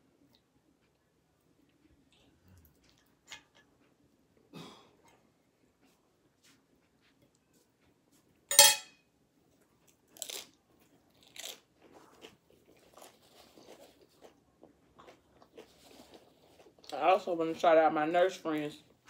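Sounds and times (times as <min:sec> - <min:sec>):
soft chewing crackles: 0:00.0 - 0:08.5, 0:09.3 - 0:19.0
chips crunching: 0:10.1 - 0:17.1.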